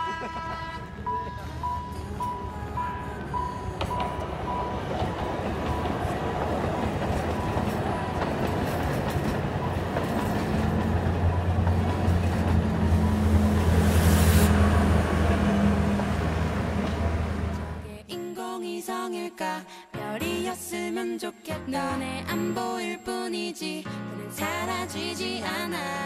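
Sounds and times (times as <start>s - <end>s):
large vehicle rumble: 0.0s - 17.9s
low engine hum: 9.2s - 17.9s.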